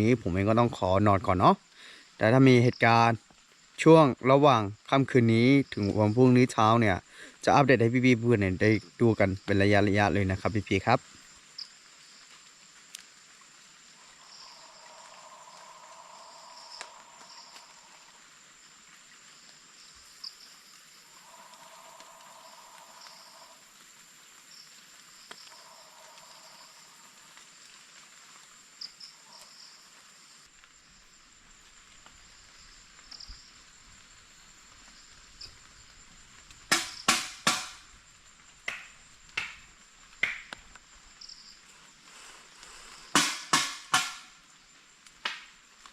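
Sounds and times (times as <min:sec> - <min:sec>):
night insects trilling: 0:00.0 - 0:45.9
sharp loud knocks: 0:36.7 - 0:37.8, 0:38.7 - 0:40.5, 0:43.1 - 0:44.3.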